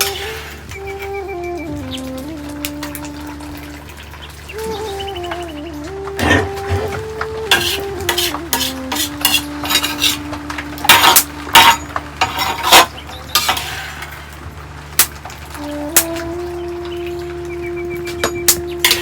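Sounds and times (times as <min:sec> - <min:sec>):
soft slow melody: 0:00.0 - 0:19.0
metal utensils clinking on dishes: 0:06.2 - 0:16.2, 0:18.0 - 0:19.0.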